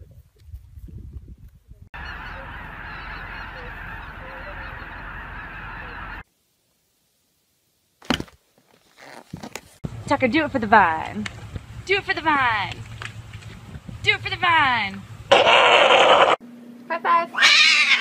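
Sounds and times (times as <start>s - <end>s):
geese honking: 2.0s - 6.2s.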